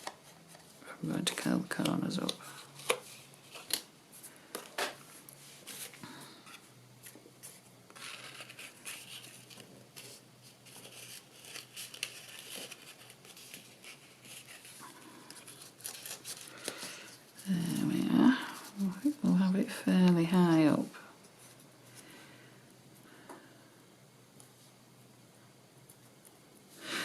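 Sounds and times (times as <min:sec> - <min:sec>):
paper rustling and crinkling: 0:00.0 - 0:19.3.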